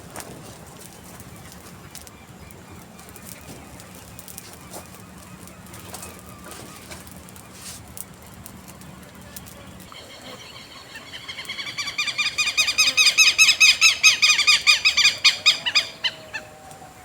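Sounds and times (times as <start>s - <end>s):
birds calling: 0.0s - 17.0s
sharp clicks and crackles: 0.1s - 9.9s.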